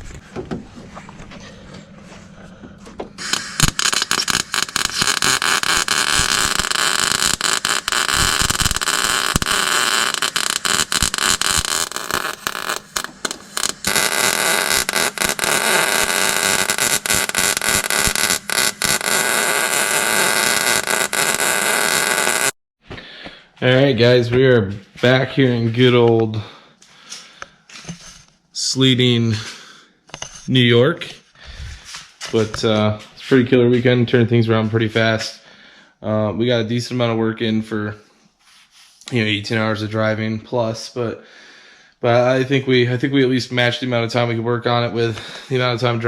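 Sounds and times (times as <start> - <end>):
arc welding crackling hiss: 3.2 - 22.6.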